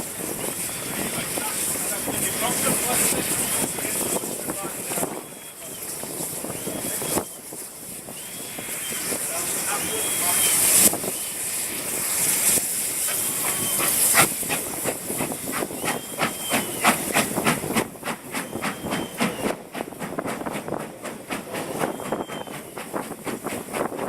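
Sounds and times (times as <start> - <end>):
hiss of steam: 0.0 - 24.0
steam locomotive exhaust chuffs: 0.0 - 24.0
high squeals: 18.4 - 19.5, 21.8 - 22.8.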